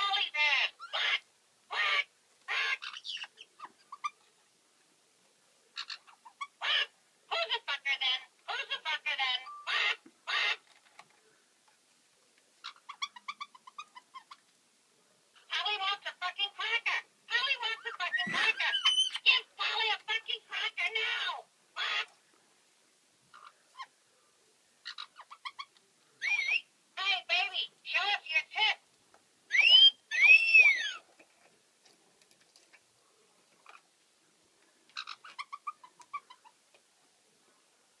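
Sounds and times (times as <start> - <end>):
parrot squeaky chirps: 0.3 - 4.2, 5.8 - 6.9, 9.4 - 10.6, 12.6 - 14.4, 17.7 - 19.8, 24.8 - 26.7, 29.5 - 31.0, 35.0 - 36.5
parrot screech: 18.1 - 19.2, 26.2 - 26.7, 29.5 - 31.0.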